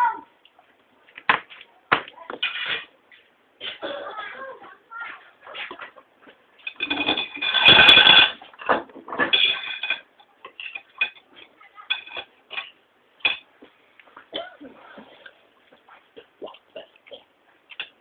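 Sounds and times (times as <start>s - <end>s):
cutlery clinking on plate: 6.6s - 11.2s.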